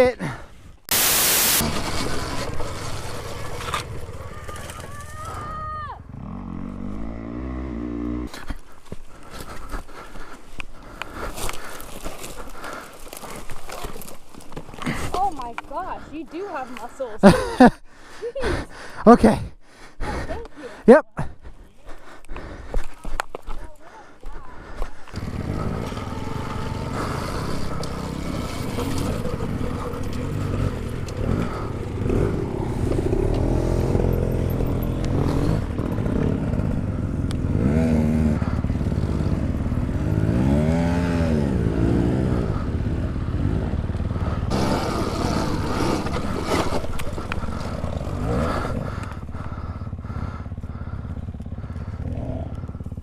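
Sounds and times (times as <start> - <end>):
dirt bike engine revving: 0.9 - 5.4, 6.0 - 8.4, 25.1 - 53.0.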